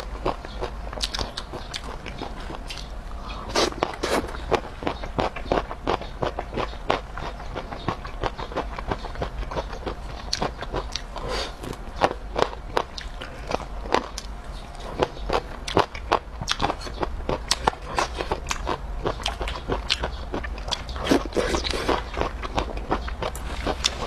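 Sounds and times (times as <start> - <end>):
wet clicking chewing: 0.0 - 24.0.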